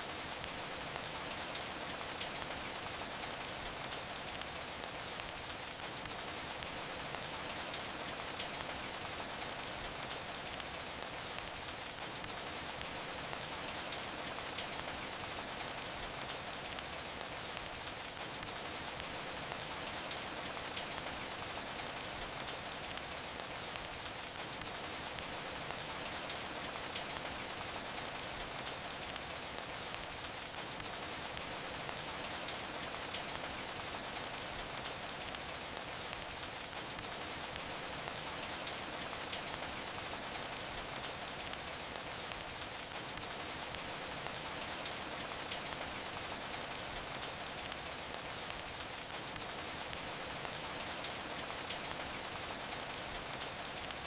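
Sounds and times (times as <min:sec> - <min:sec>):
rainfall hiss: 0:00.0 - 0:54.0
wood fire crackling and popping: 0:00.0 - 0:54.0.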